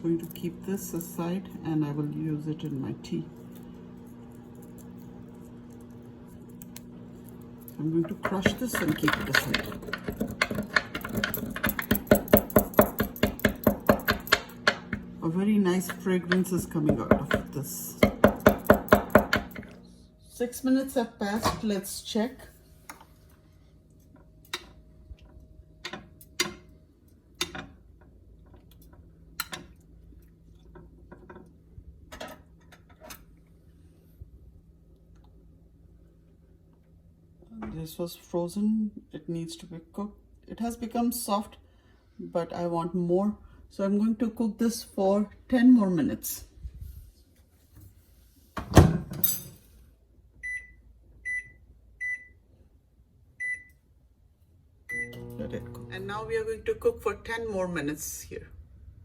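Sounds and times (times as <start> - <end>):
low steady hum: 0.0 - 47.2, 54.4 - 59.0
bowl clicks and knocks: 8.2 - 15.1.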